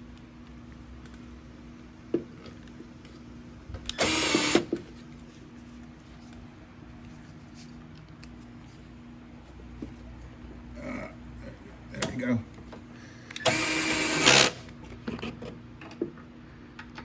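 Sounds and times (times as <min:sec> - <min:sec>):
power tool whirring: 0:03.9 - 0:04.7, 0:13.4 - 0:14.7.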